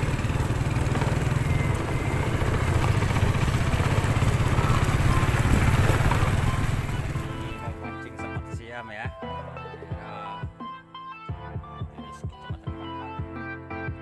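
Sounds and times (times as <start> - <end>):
small motorcycle engine running: 0.0 - 7.8.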